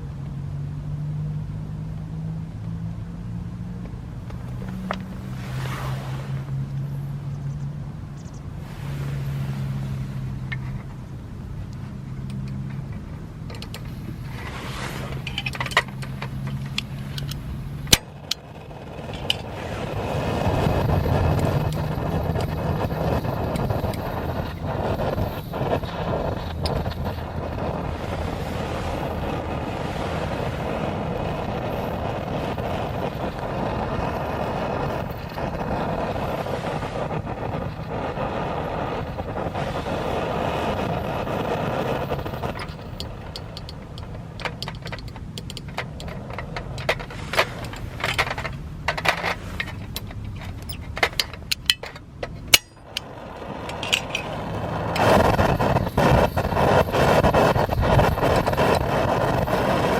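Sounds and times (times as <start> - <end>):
stove burner roaring: 8.6 - 59.9
sharp clicks and taps: 42.2 - 54.3.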